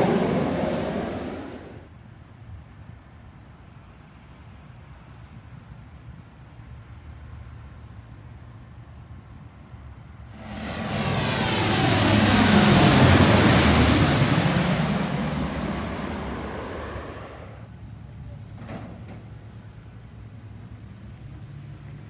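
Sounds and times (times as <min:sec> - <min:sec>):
airplane passing close by: 0:00.0 - 0:01.9, 0:10.3 - 0:17.7.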